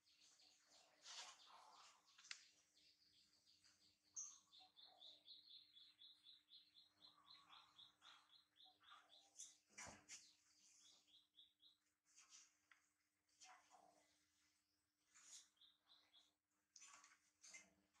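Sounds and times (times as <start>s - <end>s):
faint high bird chirps: 0.0s - 12.4s, 15.1s - 16.4s.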